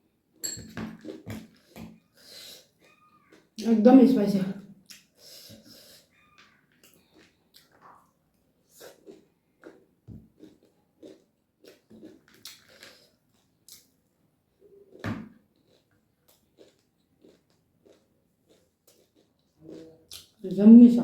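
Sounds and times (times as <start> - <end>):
person chewing and smacking: 0.6 - 3.6, 4.8 - 14.0, 14.6 - 20.4.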